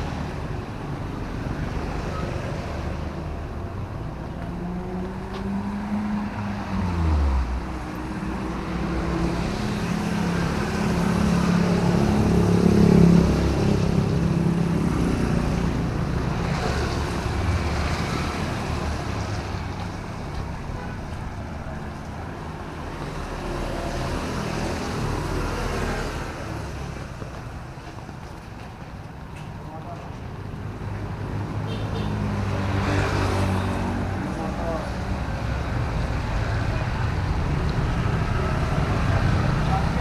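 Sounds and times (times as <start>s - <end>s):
vehicles passing on wet road: 0.0s - 40.0s.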